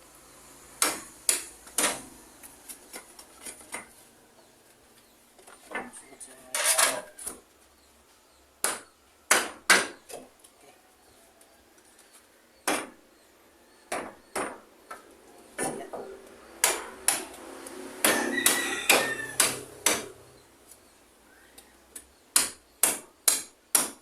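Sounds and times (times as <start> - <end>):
hammer striking nails into wood: 0.8 - 2.1, 8.6 - 10.0, 12.6 - 13.0, 13.9 - 15.0, 15.6 - 17.4, 18.0 - 20.2, 22.3 - 24.0.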